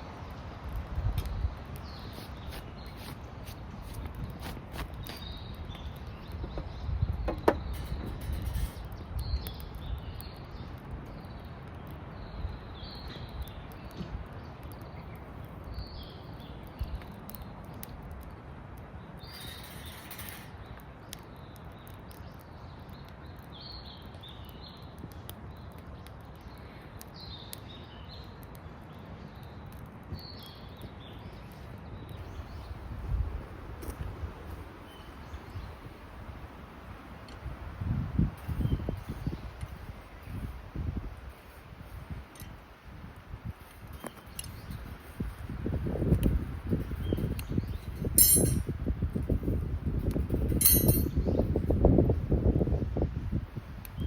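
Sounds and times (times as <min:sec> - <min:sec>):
small birds chirping: 0:00.1 - 0:17.9, 0:19.0 - 0:42.7, 0:43.4 - 0:52.9.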